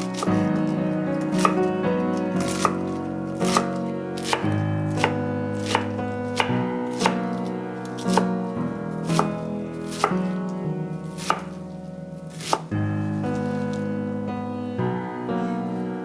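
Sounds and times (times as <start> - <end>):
knife chopping on cutting board: 0.0 - 0.5, 1.4 - 1.7, 2.4 - 7.3, 8.0 - 8.4, 9.0 - 10.4, 11.2 - 11.6, 12.3 - 12.7
soft background music: 0.0 - 16.0.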